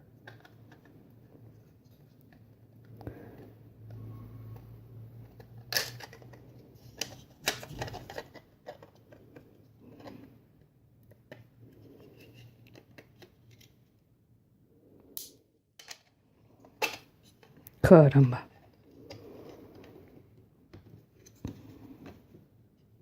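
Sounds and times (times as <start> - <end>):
plastic parts scraping: 0.2 - 10.5, 15.8 - 22.4.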